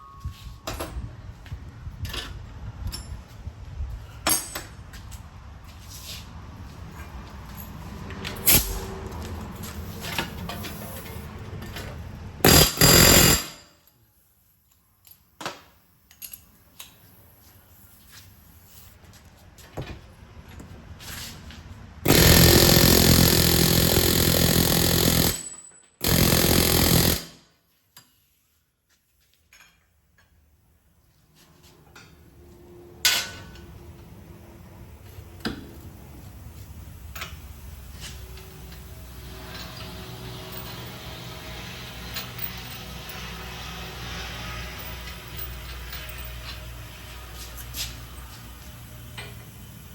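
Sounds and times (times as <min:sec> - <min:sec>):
power tool running: 0:12.4 - 0:13.6, 0:22.1 - 0:27.4, 0:37.8 - 0:49.9.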